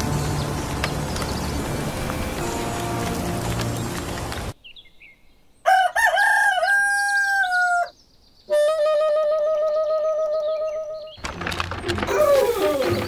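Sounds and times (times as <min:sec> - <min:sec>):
rooster crowing: 0:05.7 - 0:07.9.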